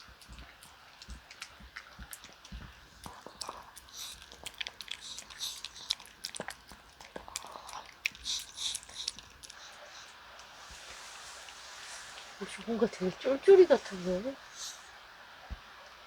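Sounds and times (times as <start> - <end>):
dog chewing food: 0.0 - 11.7.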